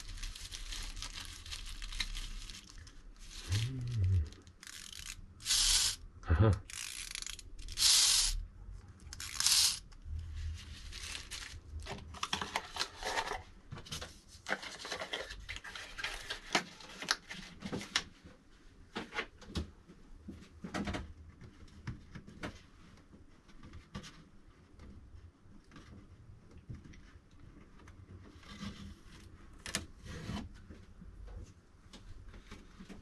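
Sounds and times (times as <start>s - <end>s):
packaging rustling: 0.0s - 6.0s, 10.6s - 13.5s, 14.5s - 17.4s
packaging tearing: 0.0s - 6.0s, 9.1s - 9.8s, 10.9s - 13.4s.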